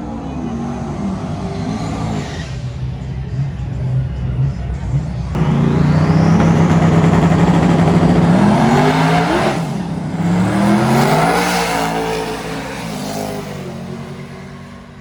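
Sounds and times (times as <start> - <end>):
car engine accelerating hard: 4.7 - 15.0.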